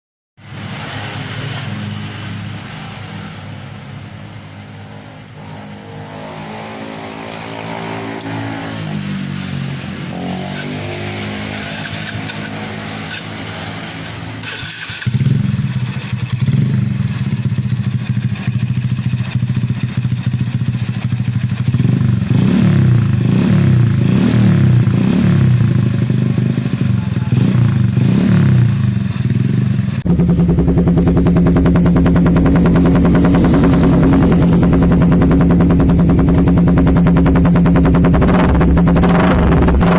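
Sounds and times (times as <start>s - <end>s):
motorcycle engine running: 4.8s - 39.9s
motorcycle throttle blips: 10.1s - 39.9s.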